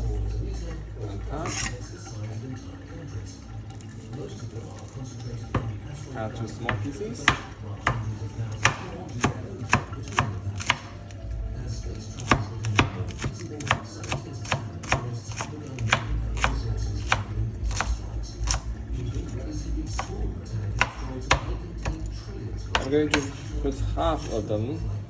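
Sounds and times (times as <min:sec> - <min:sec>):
knife chopping on cutting board: 0:01.4 - 0:01.8, 0:06.7 - 0:11.0, 0:12.2 - 0:19.3, 0:19.9 - 0:20.2, 0:20.8 - 0:22.1, 0:22.7 - 0:23.5.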